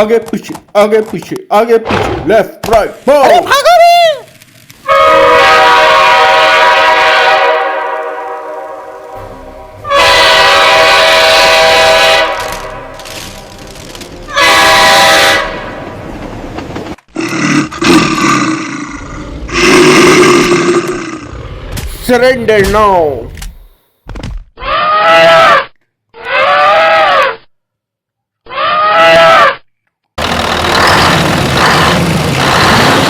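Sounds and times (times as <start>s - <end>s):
train horn blasts: 4.8s - 13.6s, 14.3s - 16.0s.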